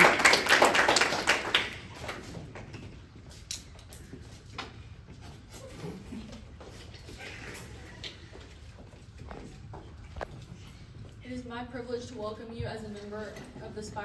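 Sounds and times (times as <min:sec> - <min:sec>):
people clapping: 0:00.0 - 0:02.7
scattered knocks and shuffles: 0:02.0 - 0:11.3.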